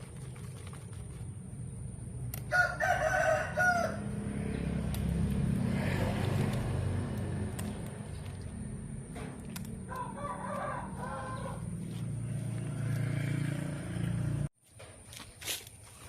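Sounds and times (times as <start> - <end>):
rooster crowing: 2.5 - 4.2, 9.9 - 11.8.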